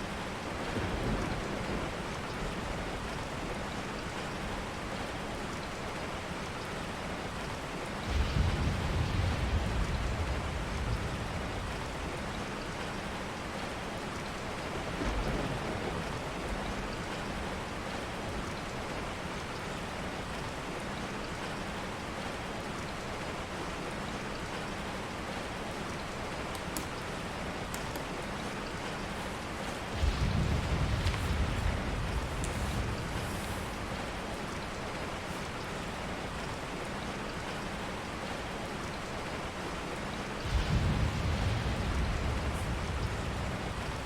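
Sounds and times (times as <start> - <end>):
steady rain: 0.0 - 44.0
thunder rumbling: 8.0 - 12.3, 29.2 - 34.5, 40.4 - 44.0.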